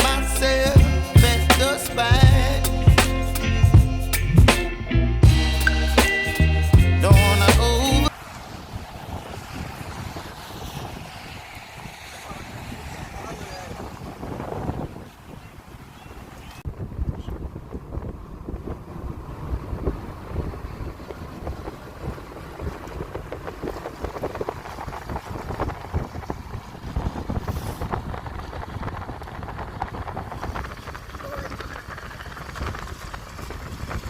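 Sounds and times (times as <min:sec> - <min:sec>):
wind buffeting microphone: 0:08.4 - 0:34.0.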